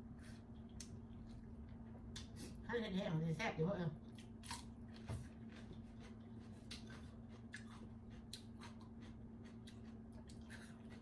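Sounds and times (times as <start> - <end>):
steady low hum: 0.0 - 11.0
crunchy chewing: 4.1 - 11.0.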